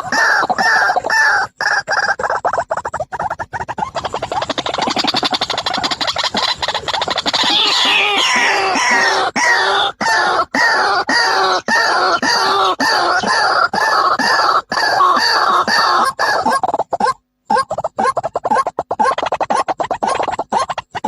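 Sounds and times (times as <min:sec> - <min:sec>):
bird calling downward-sliding notes: 0:03.8 - 0:19.7.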